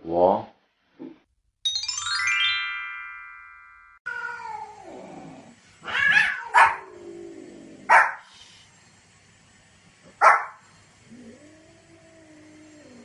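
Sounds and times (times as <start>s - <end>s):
descending chime flourish: 1.7s - 4.0s
cat yowling: 4.1s - 4.9s, 5.8s - 7.0s
dog barking: 6.2s - 6.9s, 7.9s - 8.3s, 10.2s - 10.6s.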